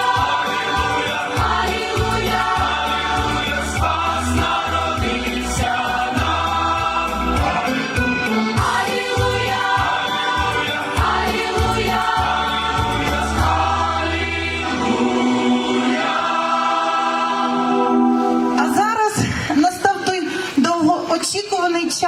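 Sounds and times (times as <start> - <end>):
pulsing bass accompaniment: 0.0 - 15.6
choir singing sacred song: 0.0 - 18.6.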